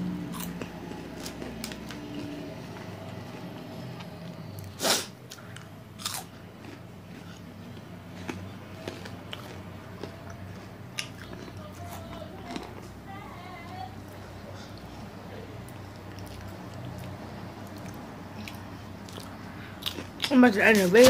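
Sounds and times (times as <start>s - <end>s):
crunchy snack being chewed: 0.3s - 2.4s, 4.0s - 12.8s, 15.7s - 21.0s.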